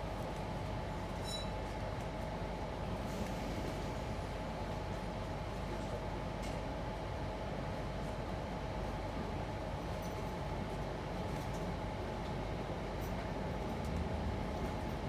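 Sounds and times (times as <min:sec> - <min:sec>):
train rumble: 0:11.7 - 0:15.0.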